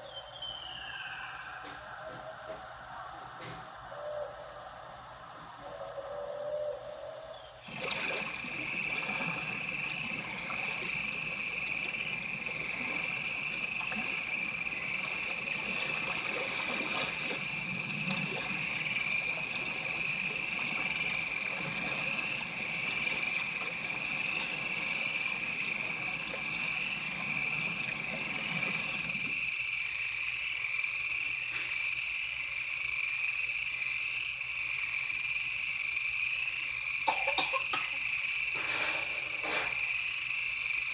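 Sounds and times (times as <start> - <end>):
chorus of calling animals: 0.0 - 26.7.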